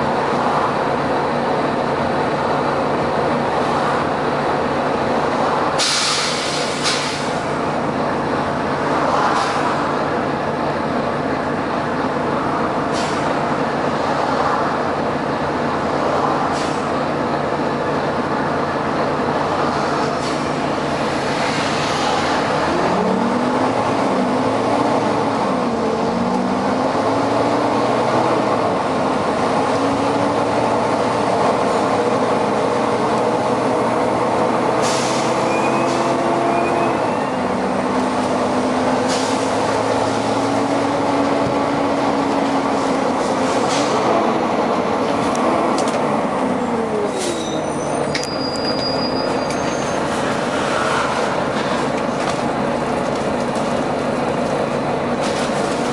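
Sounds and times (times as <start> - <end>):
bus engine accelerating: 0.0 - 55.9
bus air hiss: 5.8 - 7.5, 12.9 - 13.4, 16.5 - 17.0, 34.8 - 35.4, 39.0 - 40.3.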